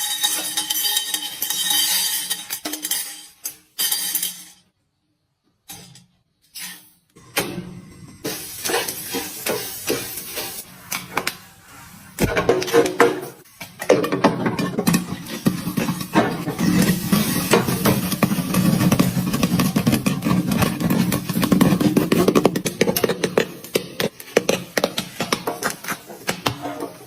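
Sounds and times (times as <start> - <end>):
popcorn popping: 0.0 - 4.4, 12.2 - 27.0
stirring in metal pot: 0.0 - 4.5, 8.2 - 27.0.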